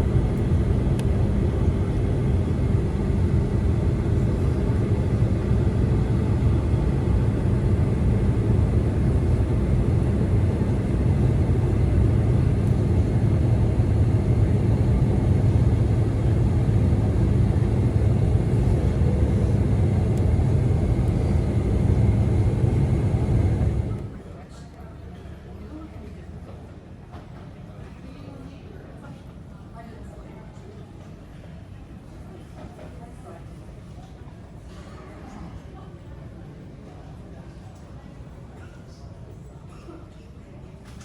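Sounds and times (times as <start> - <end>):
airliner cabin engine rumble: 0.0 - 24.4.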